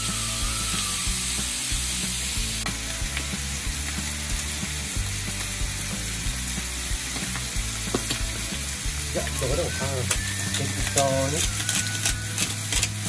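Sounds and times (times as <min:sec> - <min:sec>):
chicken skin sizzling in a pan: 0:00.0 - 0:13.0
small pops and crackles: 0:07.0 - 0:08.5, 0:09.1 - 0:13.0.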